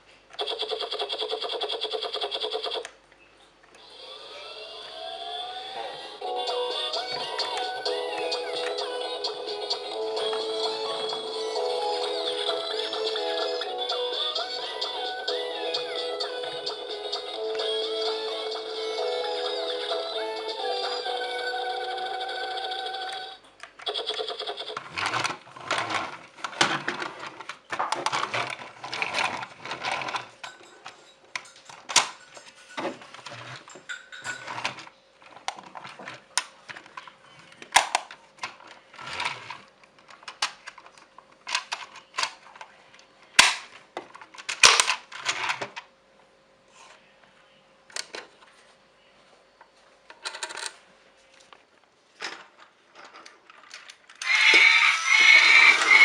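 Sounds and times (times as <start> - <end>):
plastic pieces clicking and rattling: 37.6 - 42.7, 50.1 - 50.8.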